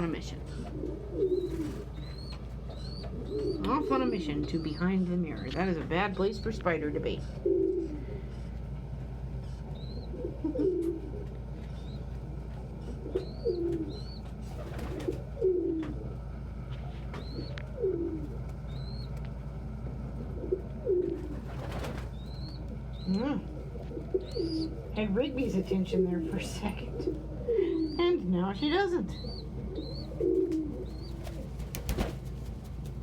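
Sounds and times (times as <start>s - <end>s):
pigeons cooing: 0.0s - 33.0s
steady low hum: 0.0s - 33.0s
rustling: 30.0s - 33.0s.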